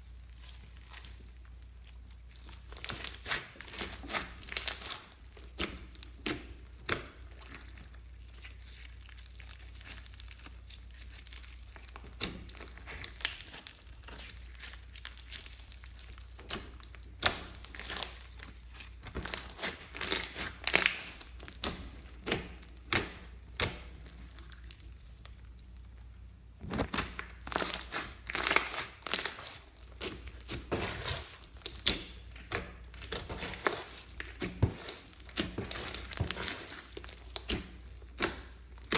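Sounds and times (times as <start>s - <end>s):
slime crackling and popping: 0.0s - 38.9s.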